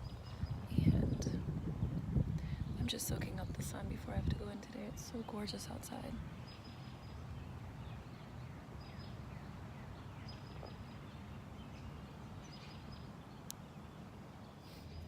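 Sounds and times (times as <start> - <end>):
steady low rumble: 0.0 - 6.5.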